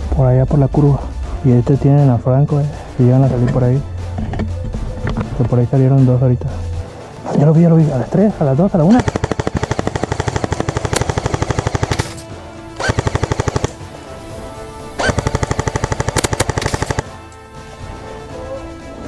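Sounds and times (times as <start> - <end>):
airsoft gun firing full auto: 9.0 - 13.8, 15.0 - 17.2.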